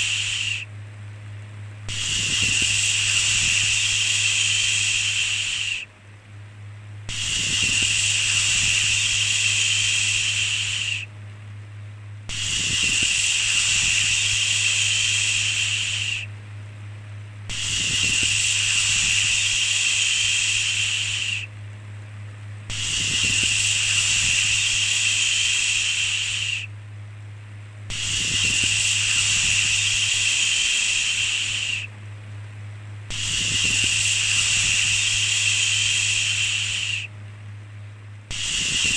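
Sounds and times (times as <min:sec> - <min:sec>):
person shushing: 0:00.0 - 0:00.7, 0:07.1 - 0:11.1, 0:33.1 - 0:37.1
low steady hum: 0:00.0 - 0:38.9.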